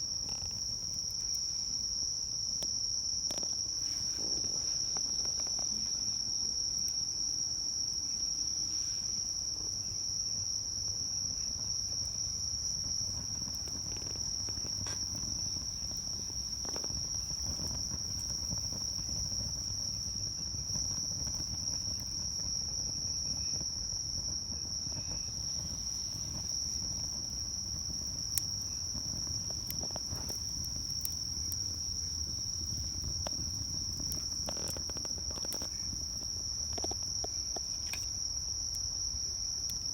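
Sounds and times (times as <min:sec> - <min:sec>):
wood fire crackling: 0:00.0 - 0:07.1, 0:08.6 - 0:39.9
insects singing: 0:09.9 - 0:39.9.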